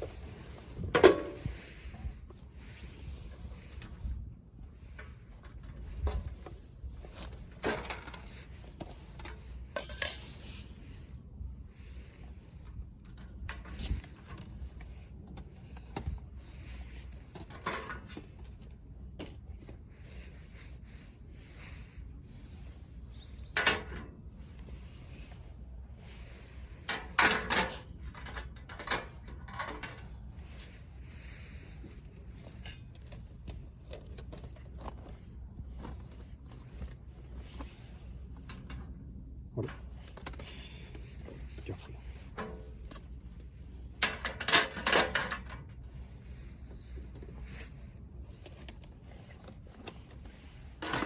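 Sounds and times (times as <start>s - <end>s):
steady low rumble: 0.0s - 50.9s.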